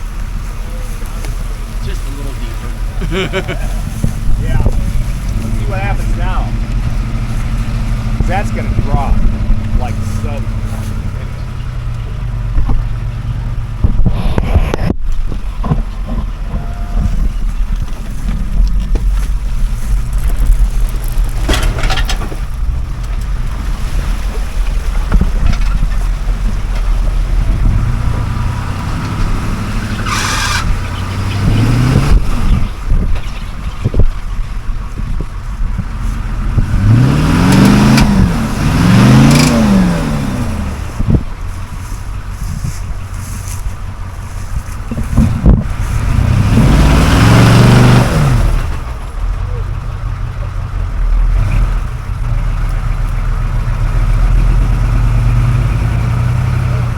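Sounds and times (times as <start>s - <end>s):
wind buffeting microphone: 0.0s - 50.0s
off-road vehicle engine at low speed: 0.0s - 56.9s
sharp knocks from vehicle: 13.8s - 22.6s.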